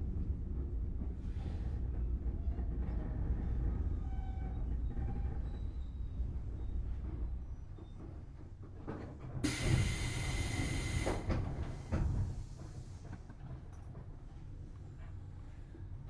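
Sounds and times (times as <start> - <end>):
electric train rumble: 9.4 - 13.0.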